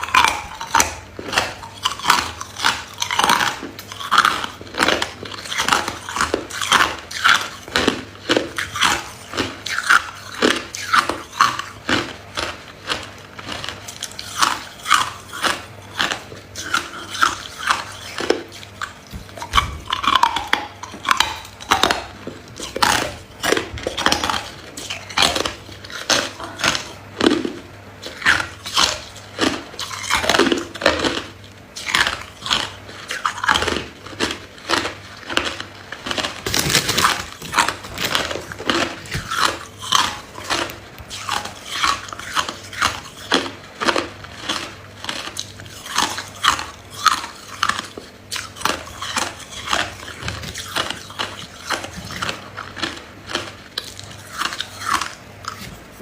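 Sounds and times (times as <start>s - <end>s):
person crunching ice: 28.6s - 55.6s.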